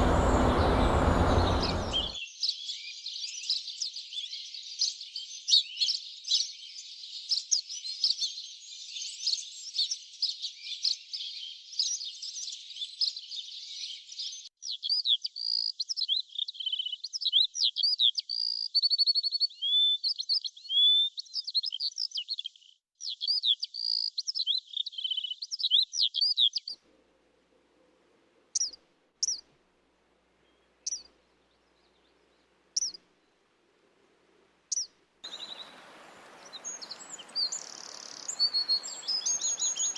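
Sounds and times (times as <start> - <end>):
faint low hum: 0.0 - 2.2, 26.9 - 34.6
whistled bird calls: 0.0 - 3.6, 14.8 - 22.2, 34.7 - 39.9
birds chirping and twittering: 0.0 - 26.8, 28.5 - 29.5, 30.3 - 33.5, 34.7 - 39.9.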